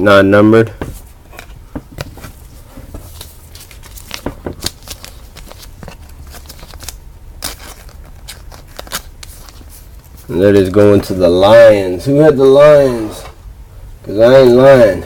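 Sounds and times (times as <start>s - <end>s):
faint steady hum: 0.0s - 15.0s
cards and packaging crinkling: 1.3s - 11.1s.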